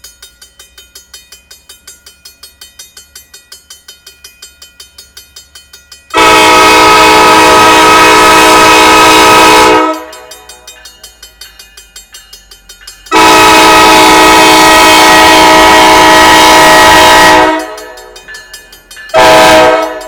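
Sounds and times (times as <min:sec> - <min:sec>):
crossing bell ringing: 0:00.0 - 0:20.0
locomotive air horn blast: 0:06.2 - 0:10.2, 0:13.1 - 0:18.0, 0:19.2 - 0:20.0.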